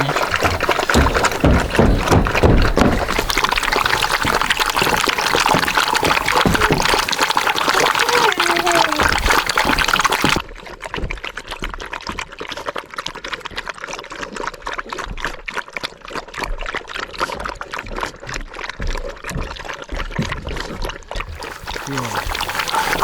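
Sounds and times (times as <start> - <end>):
liquid pouring: 0.0 - 10.4, 21.2 - 23.0
stew bubbling in a pot: 0.0 - 23.0.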